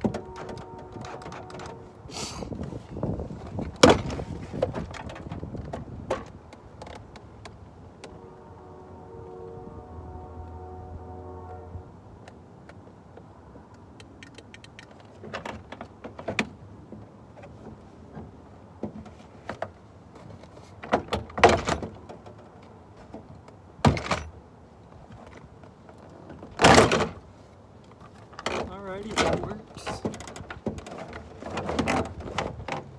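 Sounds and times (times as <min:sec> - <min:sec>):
short scraping bursts: 0:00.8 - 0:02.9.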